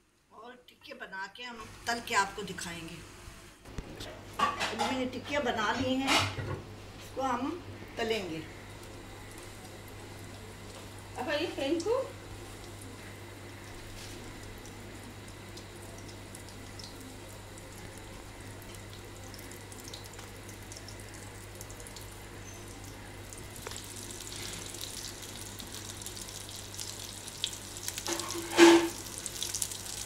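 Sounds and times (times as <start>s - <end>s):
food sizzling in frying pan: 8.6s - 17.6s, 23.2s - 30.0s.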